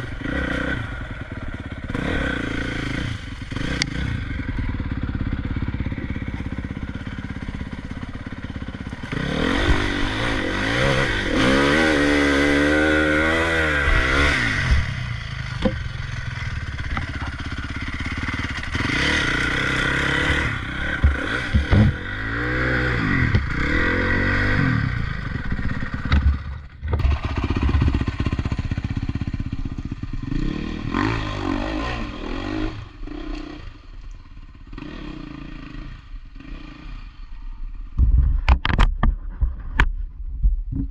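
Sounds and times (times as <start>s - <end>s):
motocross bike engine revving: 0.0s - 37.5s
sharp knocks: 21.0s - 22.0s.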